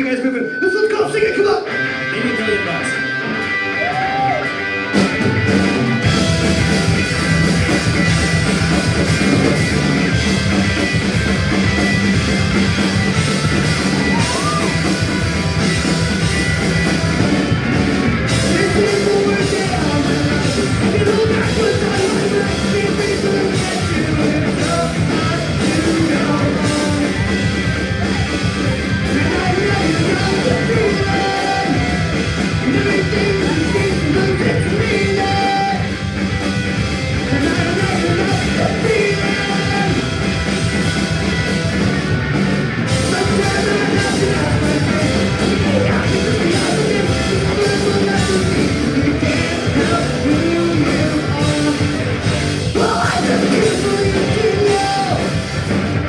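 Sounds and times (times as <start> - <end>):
punk rock band playing live: 0.0 - 56.0
person singing: 13.2 - 40.5, 42.9 - 55.8.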